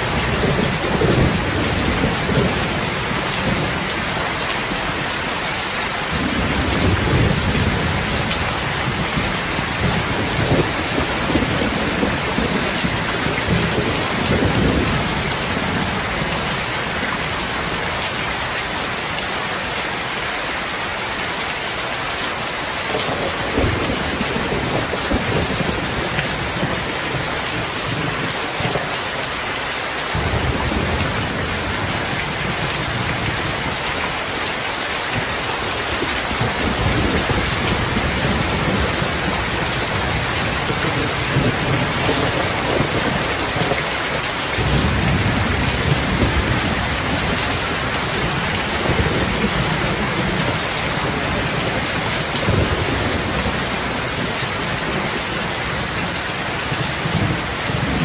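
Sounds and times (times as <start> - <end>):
heavy rain: 0.0 - 58.0
rolling thunder: 6.1 - 16.7, 22.9 - 28.7, 35.1 - 58.0.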